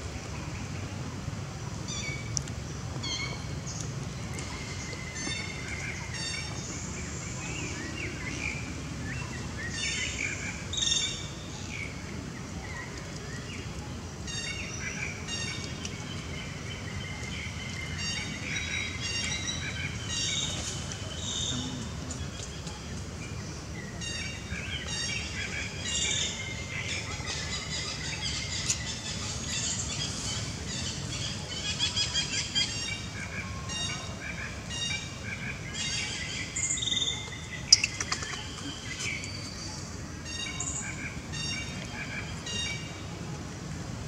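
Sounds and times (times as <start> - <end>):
steady low background noise: 0.0 - 44.0
birds chirping and trilling: 14.3 - 43.0.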